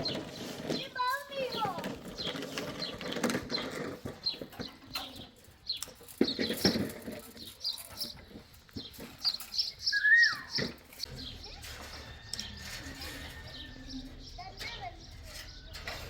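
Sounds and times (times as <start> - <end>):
knocks and clatter: 0.0 - 9.6
birds chirping: 0.0 - 16.0
falling bird call: 9.8 - 10.8.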